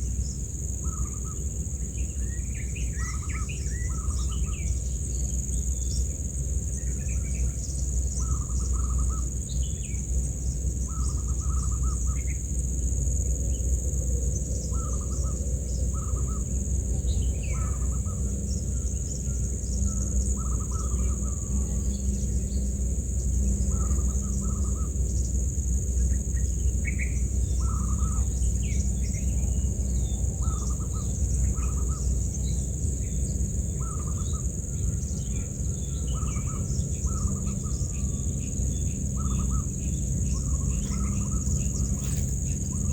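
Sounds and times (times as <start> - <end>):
insect drone: 0.0 - 42.9
bird calling: 30.4 - 42.9
quick bird chirps: 40.8 - 42.9.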